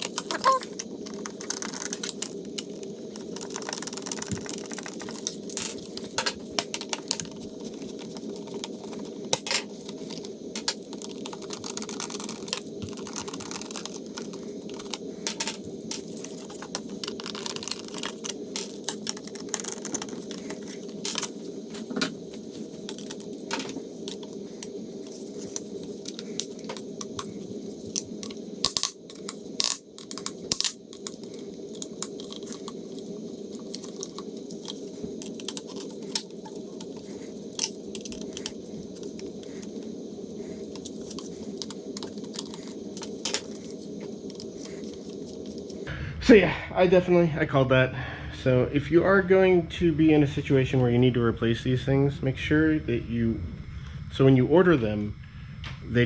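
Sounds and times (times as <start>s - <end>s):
small parts clicking and clattering: 0.0s - 45.9s
background hum: 0.0s - 56.0s.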